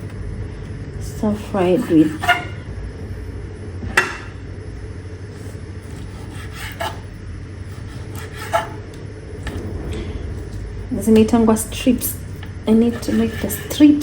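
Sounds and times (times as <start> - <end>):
steady low hum: 0.0 - 14.0
knife scraping strokes: 1.4 - 2.6, 5.5 - 7.1, 7.7 - 8.8, 12.7 - 14.0.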